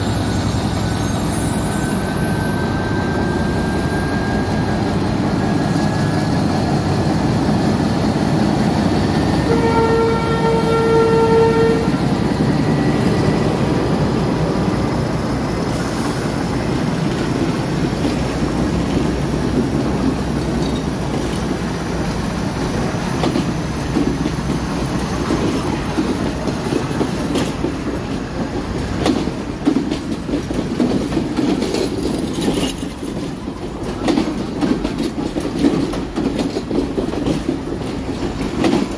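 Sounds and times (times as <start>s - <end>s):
train rumbling: 0.0s - 38.9s
locomotive horn blast: 9.4s - 12.1s
wheels clacking over rail joints: 16.4s - 38.9s.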